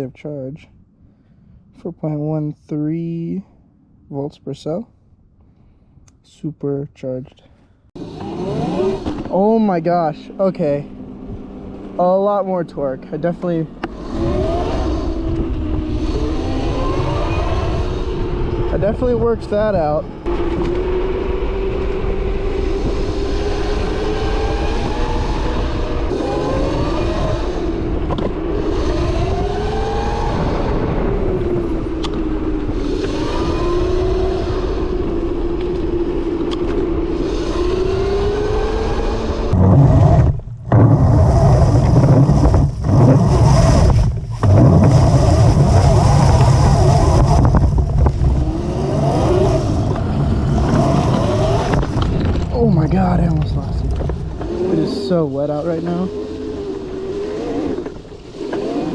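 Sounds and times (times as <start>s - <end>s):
electric motor whining: 8.0s - 9.3s, 20.3s - 52.5s
loud low rumble: 39.5s - 55.7s.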